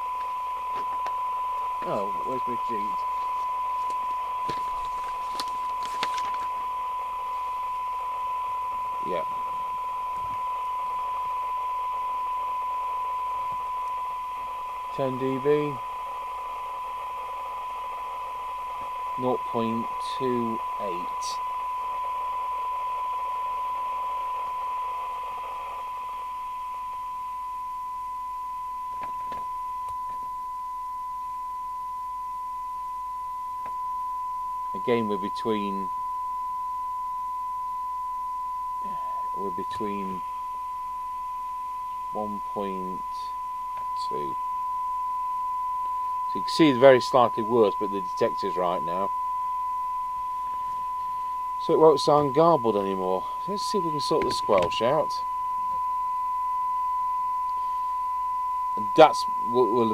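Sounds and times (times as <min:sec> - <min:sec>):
radio hiss: 0:00.0 - 0:08.0, 0:08.9 - 0:11.6, 0:13.3 - 0:27.0, 0:34.7 - 0:36.0, 0:38.8 - 0:40.5, 0:41.4 - 0:44.4, 0:46.3 - 0:49.2, 0:51.6 - 0:55.3, 0:58.7 - 0:59.9
steady test tone: 0:00.0 - 0:59.9.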